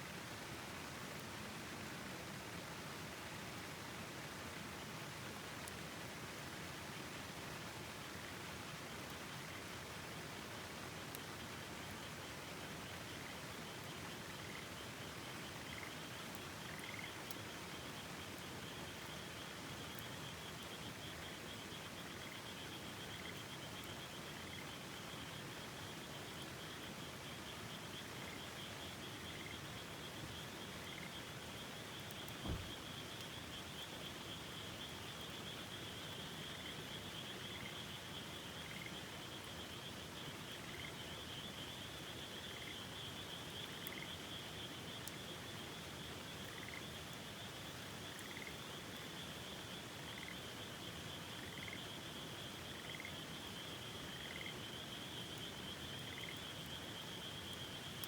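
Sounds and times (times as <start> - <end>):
frogs trilling: 15.5 - 17.3, 27.9 - 58.0
dull thump: 32.4 - 32.8.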